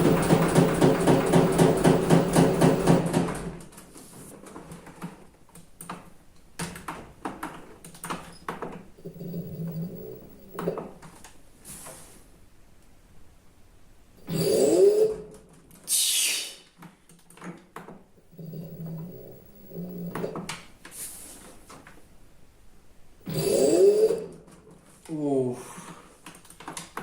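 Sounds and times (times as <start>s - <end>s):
washing machine pulsing hum: 0.0s - 3.7s.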